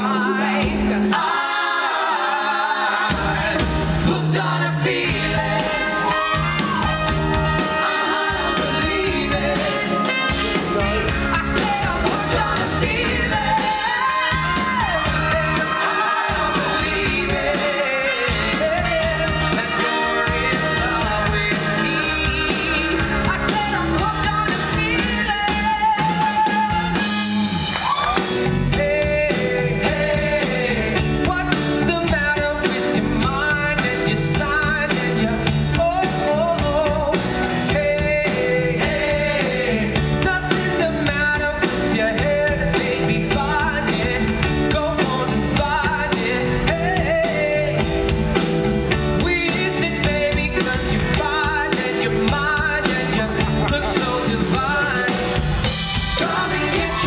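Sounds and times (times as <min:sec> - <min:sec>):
live rock band playing: 0:00.0 - 0:01.5, 0:02.8 - 0:57.0
lead singer singing: 0:00.0 - 0:27.1, 0:27.8 - 0:57.0.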